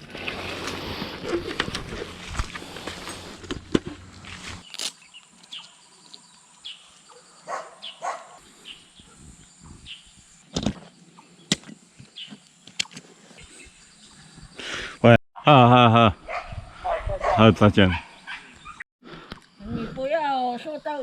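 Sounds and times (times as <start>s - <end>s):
bird calls: 4.6s - 14.9s, 16.2s - 18.8s.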